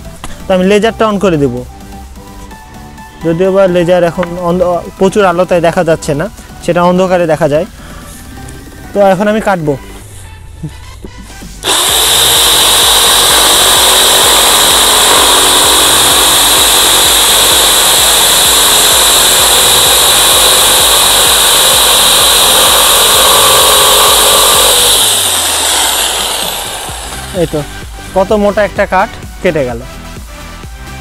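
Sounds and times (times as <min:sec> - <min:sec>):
jigsaw cutting wood: 0:11.6 - 0:28.1.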